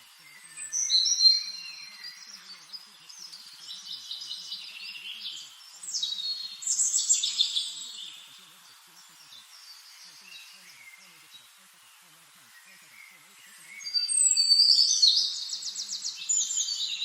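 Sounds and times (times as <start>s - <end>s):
birds chirping and whistling: 0.3s - 8.2s, 13.6s - 17.0s.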